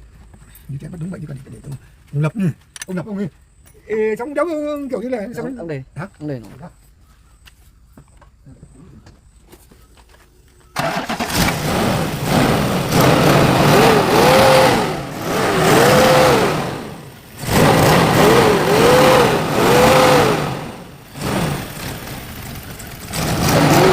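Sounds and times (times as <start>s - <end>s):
car engine starting and revving: 10.8s - 23.9s.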